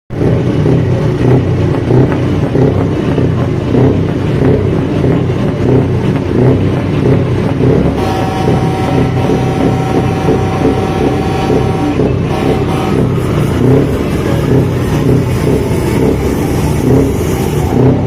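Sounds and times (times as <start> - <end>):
diesel truck engine running: 0.1 - 18.0
steady higher tone: 7.9 - 18.0.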